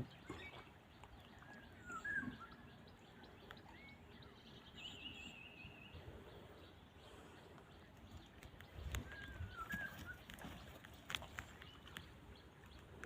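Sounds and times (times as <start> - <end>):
faint bird chirps: 1.4 - 10.8.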